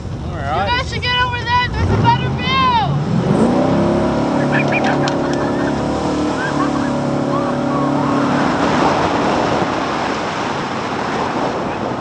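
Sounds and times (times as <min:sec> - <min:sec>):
jet boat engine running: 0:00.0 - 0:12.0
wind rushing: 0:03.0 - 0:12.0
water spray rushing: 0:03.5 - 0:12.0.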